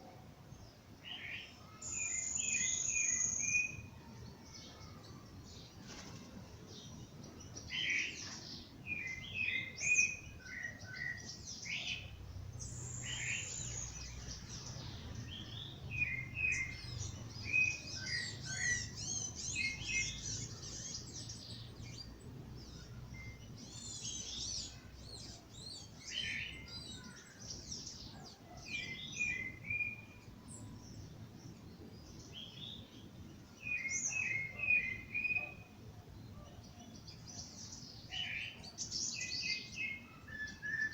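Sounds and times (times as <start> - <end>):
songbirds dawn chorus: 0.0 - 40.9.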